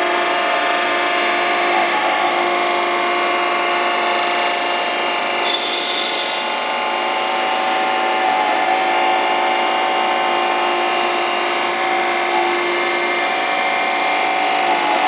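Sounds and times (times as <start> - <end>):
surface grinder grinding: 5.4 - 9.3.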